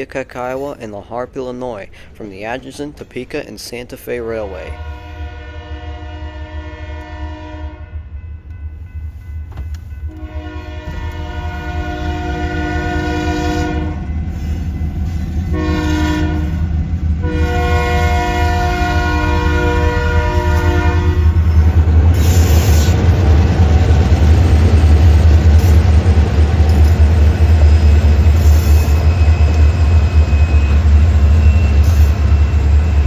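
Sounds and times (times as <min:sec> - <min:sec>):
locomotive air horn blasts: 0:04.7 - 0:08.1, 0:10.1 - 0:14.4, 0:15.5 - 0:21.6
locomotive rumble: 0:08.5 - 0:33.0.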